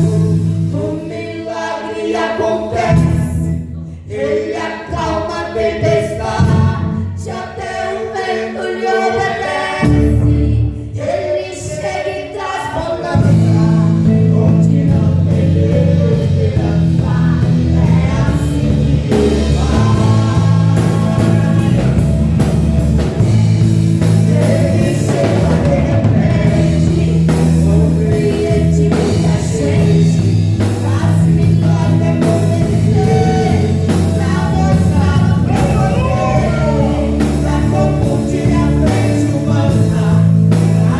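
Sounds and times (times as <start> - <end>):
church band playing: 0.0 - 40.9
person singing: 23.1 - 40.9.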